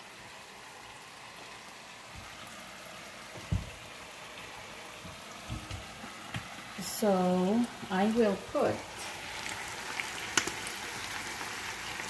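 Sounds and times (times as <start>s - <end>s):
chicken sizzling in a pan: 0.0s - 12.0s
dull knocks: 3.4s - 3.8s.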